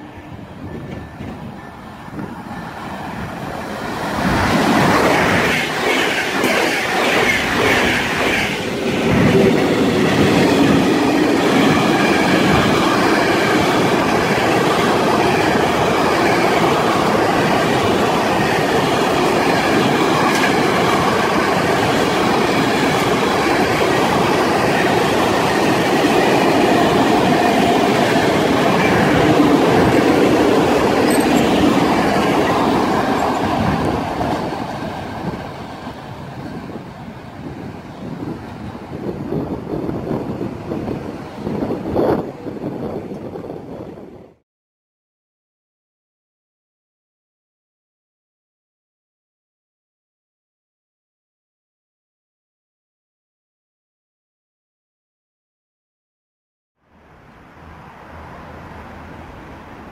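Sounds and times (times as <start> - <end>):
passenger train rushing past: 0.0 - 44.4, 56.9 - 59.9
freight train wheels clattering: 24.9 - 35.9.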